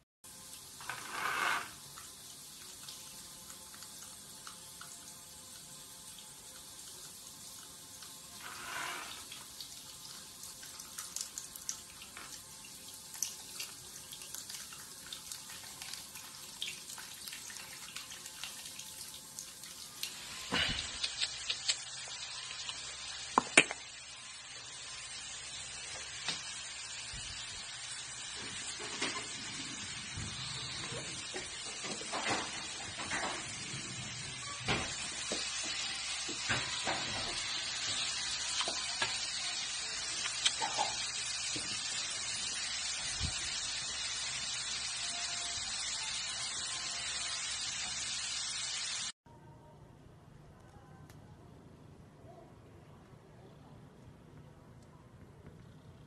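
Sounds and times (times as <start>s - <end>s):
shower head spraying water: 0.3s - 10.0s, 34.7s - 49.2s.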